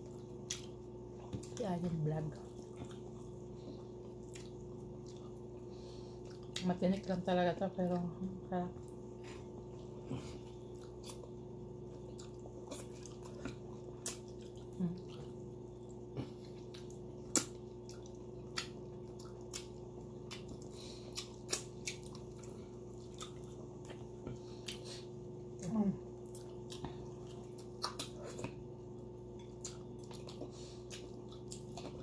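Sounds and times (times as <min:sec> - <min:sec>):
steady low hum: 0:00.0 - 0:32.0
chewing and wet lip smacks: 0:02.4 - 0:05.5, 0:09.8 - 0:25.0, 0:25.6 - 0:32.0.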